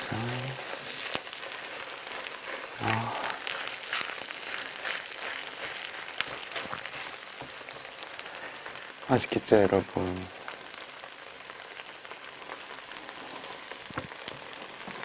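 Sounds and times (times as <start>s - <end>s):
fried rice sizzling in a pan: 0.0s - 15.0s
stirring clicks: 0.7s - 7.6s.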